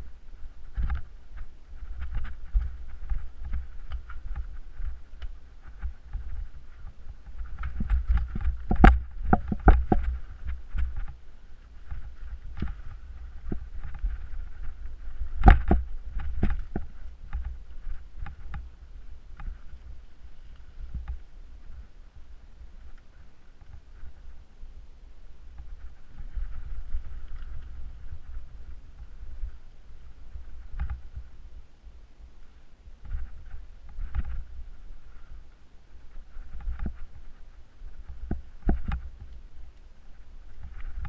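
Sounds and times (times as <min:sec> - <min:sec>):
mountain bike rattling: 0:00.0 - 0:21.8
low microphone rumble: 0:00.0 - 0:41.0.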